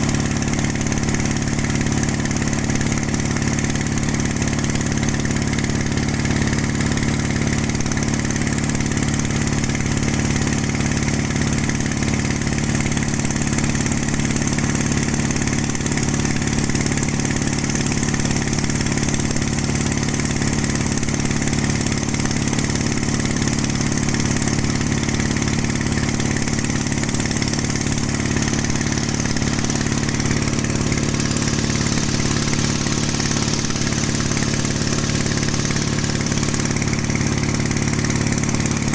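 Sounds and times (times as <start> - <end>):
boat diesel engine running: 0.0 - 38.9.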